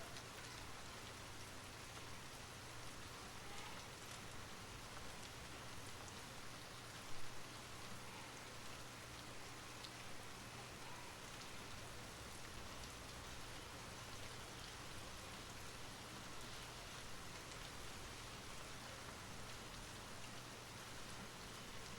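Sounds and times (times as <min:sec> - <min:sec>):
steady rain falling: 0:00.0 - 0:21.9
raindrop ticks: 0:03.6 - 0:06.2, 0:17.3 - 0:17.8.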